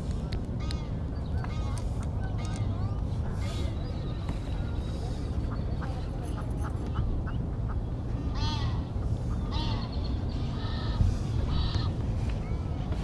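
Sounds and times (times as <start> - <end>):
waterfowl calling: 8.3 - 11.9.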